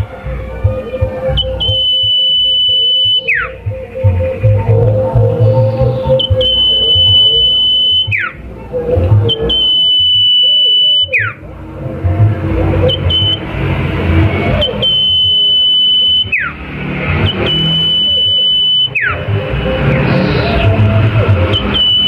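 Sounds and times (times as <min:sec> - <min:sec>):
songbird high whistle: 0:01.3 - 0:03.6, 0:05.4 - 0:08.4, 0:09.3 - 0:11.4, 0:14.5 - 0:16.5, 0:17.3 - 0:19.2.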